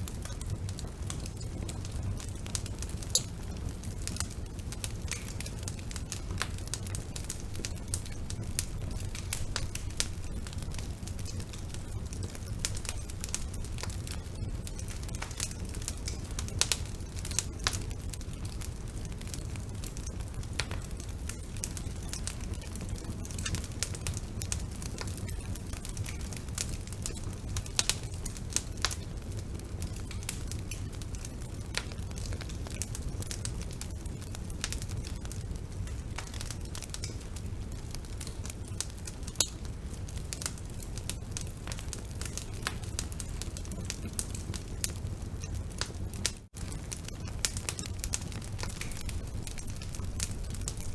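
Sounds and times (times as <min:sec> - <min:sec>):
fire crackling and popping: 0:00.0 - 0:50.9
low rumble of flames: 0:00.0 - 0:50.9.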